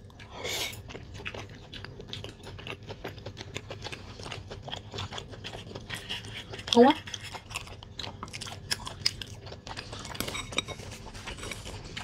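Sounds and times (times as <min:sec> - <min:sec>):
wet chewing mouth clicks: 0:00.0 - 0:10.4.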